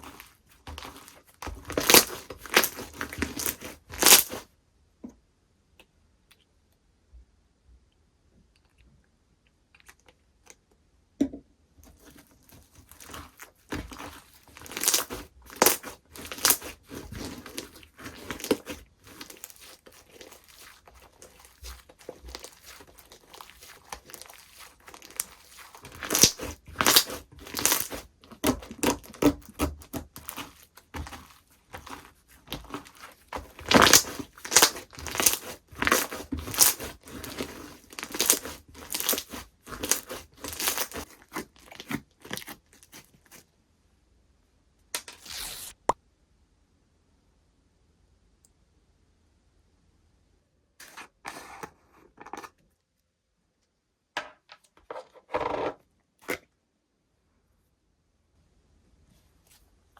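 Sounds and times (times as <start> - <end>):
slime crackling and crunching: 0.0 - 4.5, 11.8 - 43.4.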